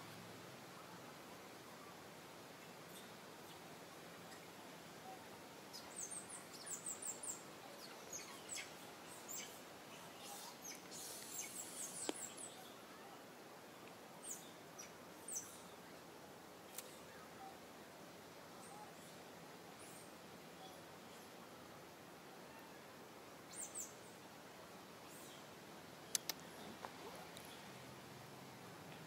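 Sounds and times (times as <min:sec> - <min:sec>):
small birds chirping: 0:00.8 - 0:21.5, 0:22.4 - 0:28.1
sharp click: 0:26.1 - 0:26.4.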